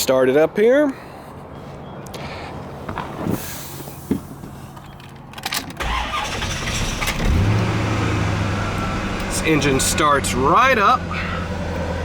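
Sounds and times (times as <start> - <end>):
car engine starting and idling: 5.3 - 12.0.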